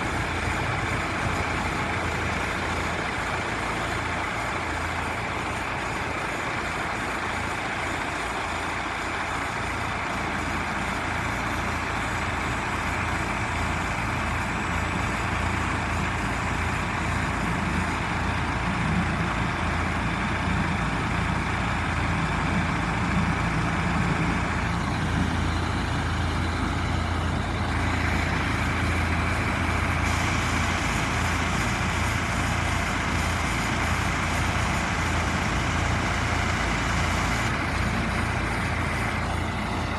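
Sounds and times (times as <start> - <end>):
vacuum truck running: 0.0 - 39.9.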